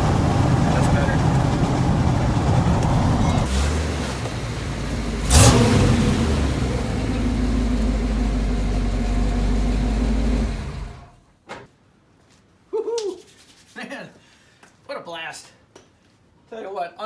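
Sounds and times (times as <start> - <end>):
pickup engine under heavy throttle: 0.0 - 11.2
sharp loud engine burst: 3.0 - 11.2.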